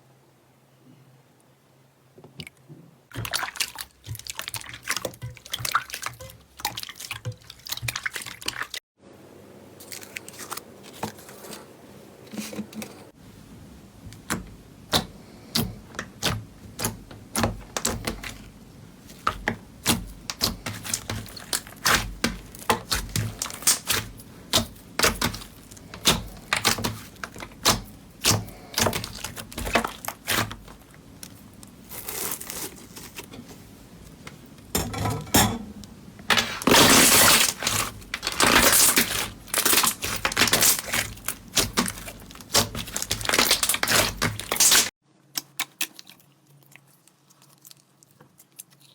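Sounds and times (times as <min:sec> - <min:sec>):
slime popping and crackling: 0:19.2 - 0:33.1, 0:36.6 - 0:46.2.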